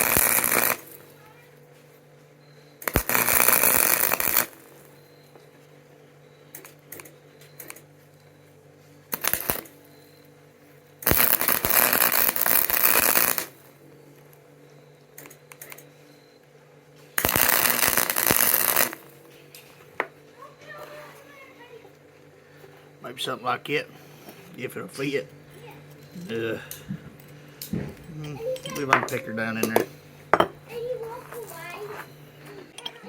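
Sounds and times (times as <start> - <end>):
crackling welding arc: 0.0 - 1.2, 2.8 - 5.0, 9.1 - 9.8, 11.0 - 14.3, 17.2 - 19.3
steady low hum: 0.0 - 33.0.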